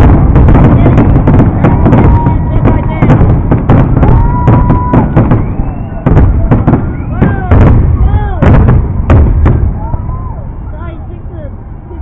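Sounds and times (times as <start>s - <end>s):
fireworks bangs and crackles: 0.0s - 10.5s
firework whistling: 0.0s - 10.8s
low rumble: 0.0s - 12.0s.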